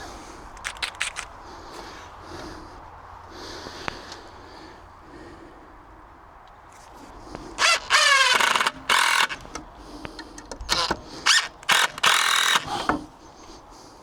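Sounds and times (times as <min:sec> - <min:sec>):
cordless drill driving screws: 0:07.6 - 0:13.1.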